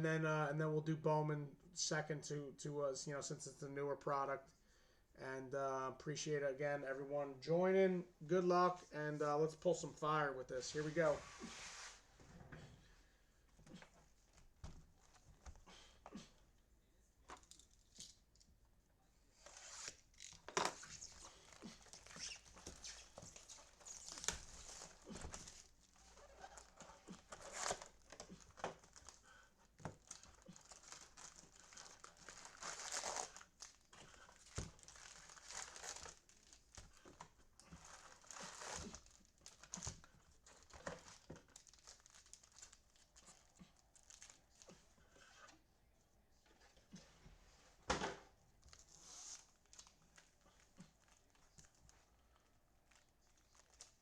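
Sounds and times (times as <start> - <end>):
packaging crinkling and tearing: 29.9 - 44.8, 49.4 - 54.0.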